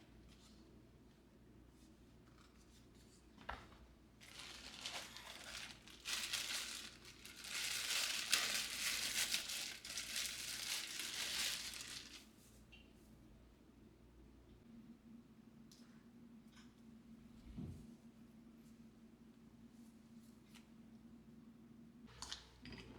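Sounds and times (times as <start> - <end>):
crinkling and rustling: 2.2 - 12.3.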